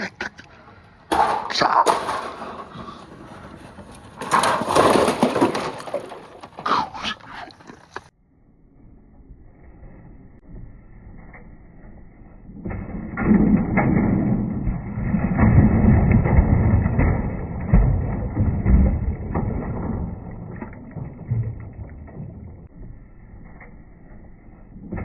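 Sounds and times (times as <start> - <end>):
marbles rolling through pipe: 12.8 - 23.0.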